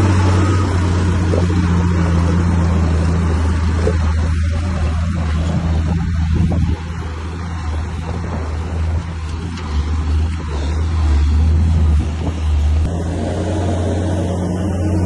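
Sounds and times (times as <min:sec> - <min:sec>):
bulldozer diesel engine droning: 0:00.0 - 0:15.0.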